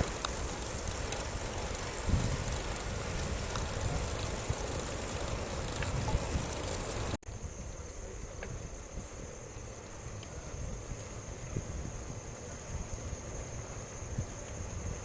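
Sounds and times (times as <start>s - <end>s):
faint clicks: 0.0s - 7.2s
road and tyre noise: 0.0s - 15.0s
steady hiss: 0.0s - 15.0s
wind buffeting microphone: 0.0s - 15.0s.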